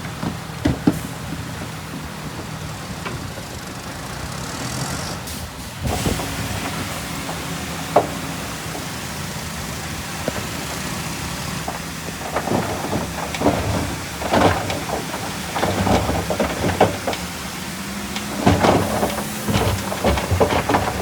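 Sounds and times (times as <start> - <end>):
diesel engine running: 0.0 - 21.0
metallic clanks and scrapes: 18.1 - 21.0.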